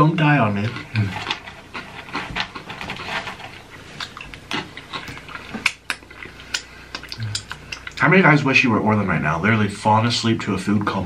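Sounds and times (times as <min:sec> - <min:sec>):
chips crunching and chewing: 0:00.4 - 0:08.0.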